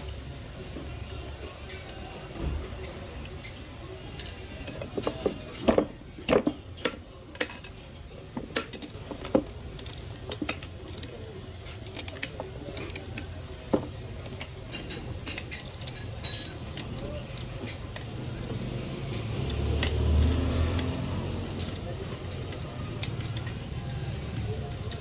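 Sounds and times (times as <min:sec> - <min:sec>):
metal tools clinking: 0:02.8 - 0:23.6.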